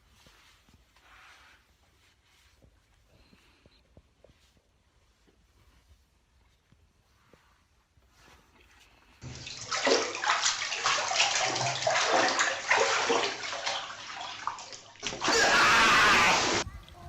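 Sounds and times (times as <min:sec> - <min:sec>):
water splashing and sloshing: 0:09.2 - 0:16.6.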